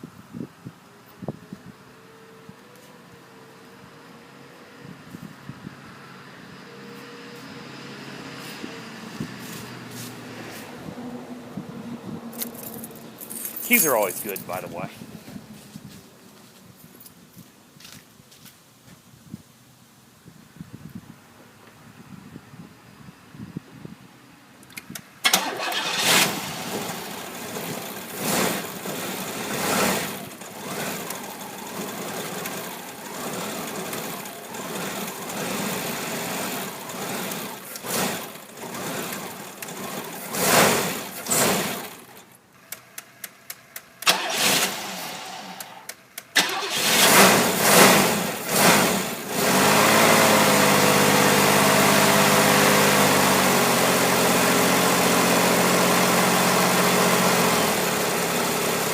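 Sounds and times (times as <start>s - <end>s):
car engine cranking and idling: 8.4s - 16.0s, 24.6s - 58.9s.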